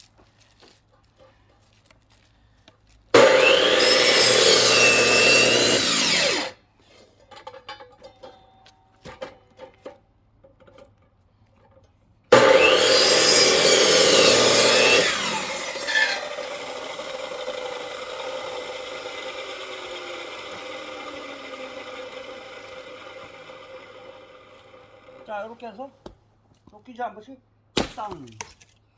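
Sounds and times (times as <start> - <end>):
chainsaw cutting log: 3.2 - 6.6, 12.3 - 25.5.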